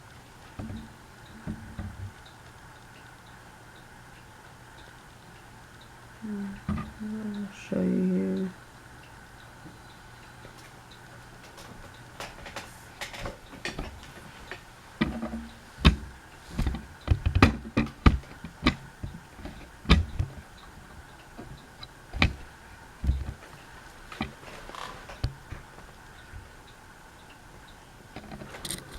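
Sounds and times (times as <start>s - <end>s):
faint steady hum: 0.0s - 28.9s
sharp clicks and knocks: 0.5s - 2.5s, 6.6s - 7.0s, 11.4s - 26.5s, 28.2s - 28.9s.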